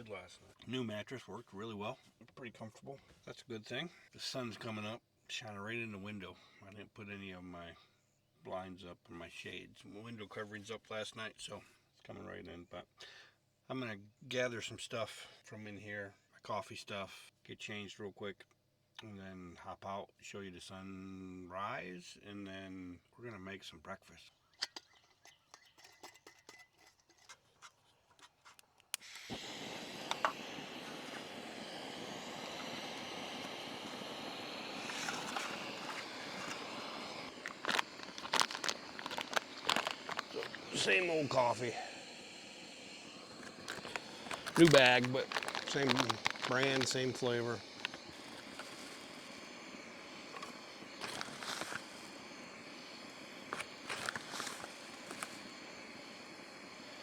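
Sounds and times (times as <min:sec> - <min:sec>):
faint steady hiss: 0:00.0 - 0:24.2, 0:28.6 - 0:57.0
outdoor background noise: 0:24.4 - 0:57.0.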